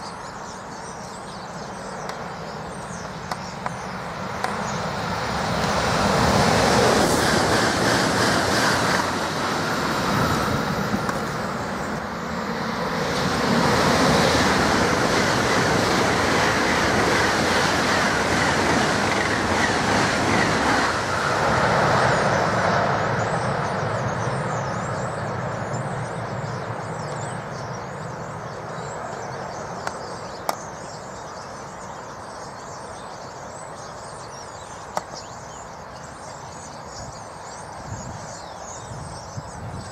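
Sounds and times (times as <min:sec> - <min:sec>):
high-speed train passing: 0:00.0 - 0:39.9
birds chirping: 0:22.0 - 0:39.9.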